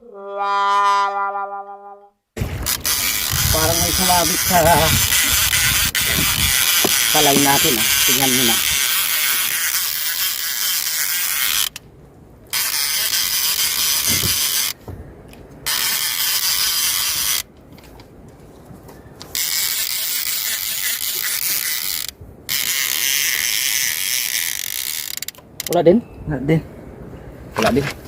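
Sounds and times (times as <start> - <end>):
fishing reel ratcheting whirr: 2.4 - 11.8, 12.5 - 14.8, 15.6 - 17.5, 19.3 - 25.8.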